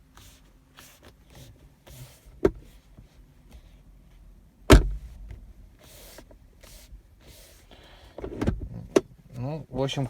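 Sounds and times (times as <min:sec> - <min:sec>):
armrest creaking: 0:04.7 - 0:07.6, 0:08.2 - 0:09.1.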